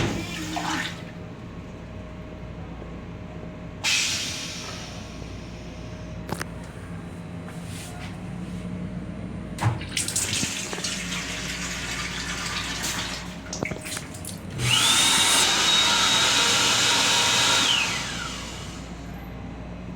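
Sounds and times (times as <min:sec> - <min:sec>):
water running: 0:00.0 - 0:01.3, 0:09.6 - 0:15.5
motor whining: 0:14.5 - 0:19.1.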